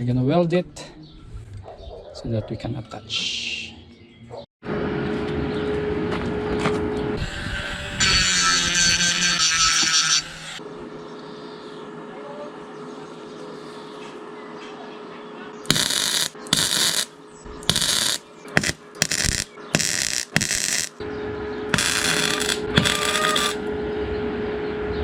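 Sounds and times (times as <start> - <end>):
crackling tack welds: 7.2 - 10.6, 15.7 - 21.0, 21.7 - 23.7.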